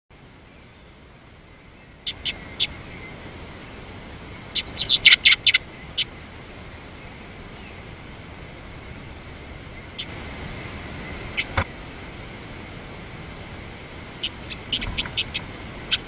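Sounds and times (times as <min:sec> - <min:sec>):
faint hiss: 0:00.2 - 0:16.0
bird chirping: 0:00.4 - 0:03.2, 0:04.3 - 0:06.2, 0:09.7 - 0:10.2, 0:14.2 - 0:16.0.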